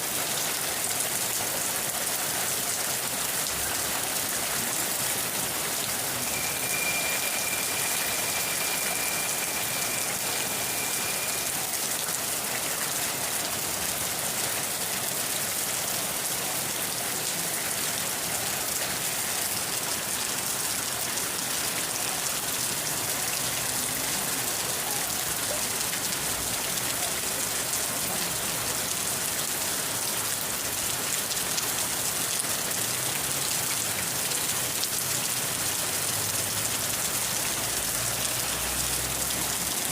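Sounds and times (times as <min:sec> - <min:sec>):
steady rain falling: 0:00.0 - 0:39.9
faint high steady tone: 0:06.2 - 0:12.2.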